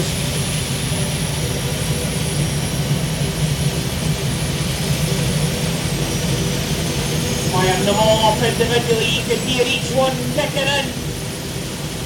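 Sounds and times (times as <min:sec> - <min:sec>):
tractor engines running: 0:05.0 - 0:11.9.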